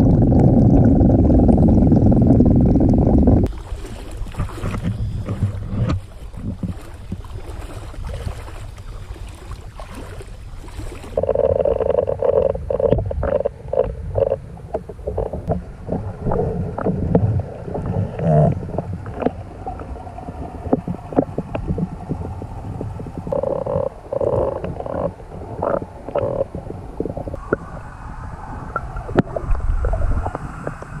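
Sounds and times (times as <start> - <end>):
wind rushing on microphone: 0.0 - 3.5, 12.7 - 31.0
frogs croaking: 11.1 - 16.4, 22.1 - 29.4.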